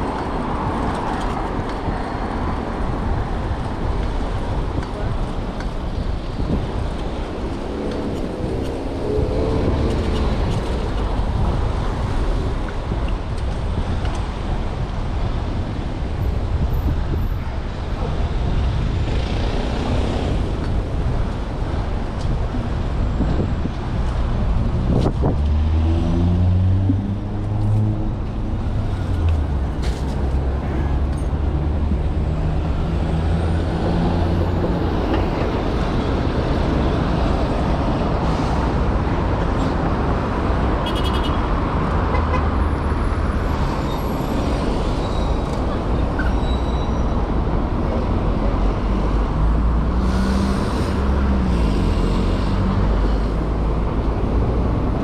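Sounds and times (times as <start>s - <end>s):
wind rumble on microphone: 0.0s - 30.6s
city street traffic: 0.0s - 55.0s.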